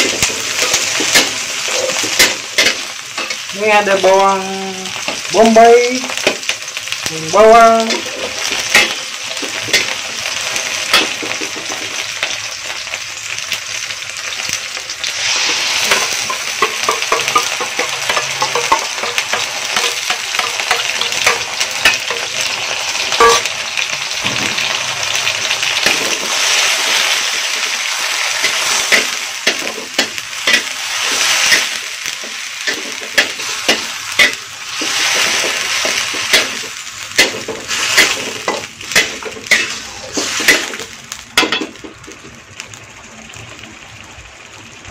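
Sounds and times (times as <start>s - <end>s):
onions sizzling in oil: 0.0s - 44.9s
utensil scraping a pan: 32.6s - 40.8s.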